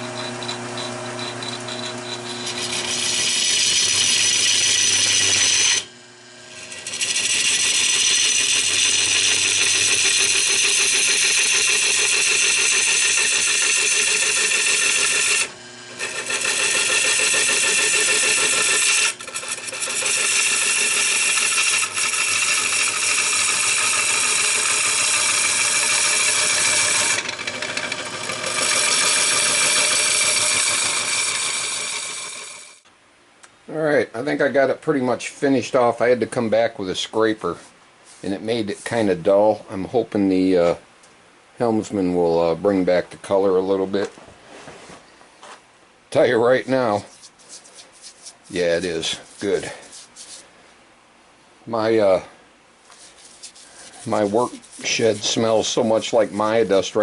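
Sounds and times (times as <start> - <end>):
turning tool scraping wood: 0.0 - 32.8, 37.6 - 39.4, 46.7 - 50.5, 52.8 - 57.0
wood lathe spinning: 0.0 - 32.8, 47.2 - 50.4, 52.9 - 57.0.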